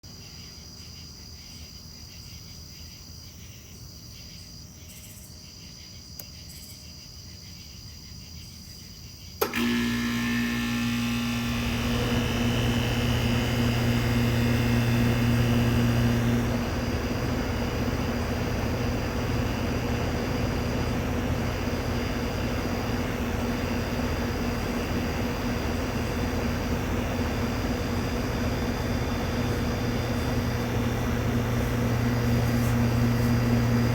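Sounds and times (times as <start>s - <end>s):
insects chirping: 0.1s - 9.4s, 16.8s - 33.9s
air-conditioner switch click: 9.4s - 10.4s
compressor humming: 9.4s - 33.9s
fan spinning up with a whoosh: 9.4s - 33.9s.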